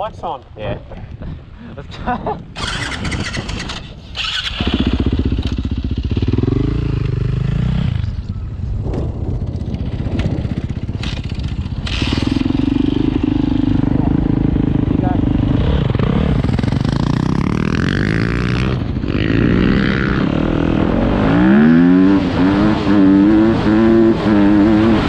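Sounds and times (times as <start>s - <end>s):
dirt bike engine starting: 2.6s - 7.3s, 8.9s - 14.0s
engine revving: 2.6s - 8.2s, 10.9s - 25.0s.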